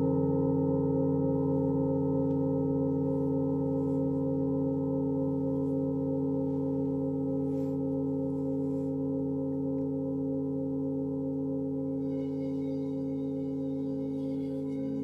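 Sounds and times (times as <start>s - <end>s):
singing bowls ringing: 0.0s - 15.0s.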